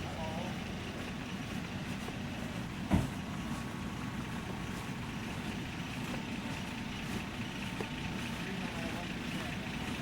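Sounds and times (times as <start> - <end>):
truck engine running: 0.0 - 10.0
sharp thump: 2.8 - 3.2.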